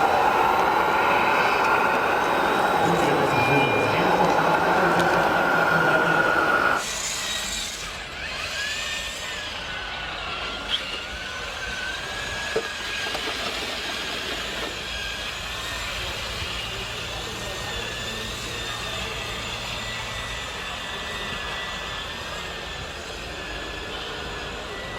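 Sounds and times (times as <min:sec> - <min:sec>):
loud steady hissing: 0:00.0 - 0:06.8
electric motor whine: 0:00.0 - 0:24.9.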